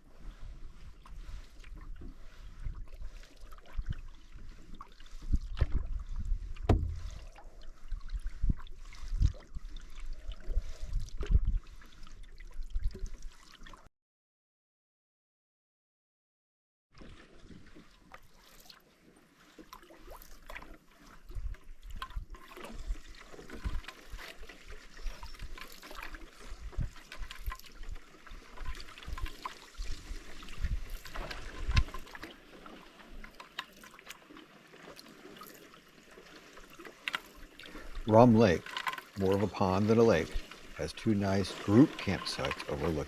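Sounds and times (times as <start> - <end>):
water splashing off paddle: 0.1 - 13.8, 17.0 - 43.0
small clicks and knocks: 38.6 - 39.1.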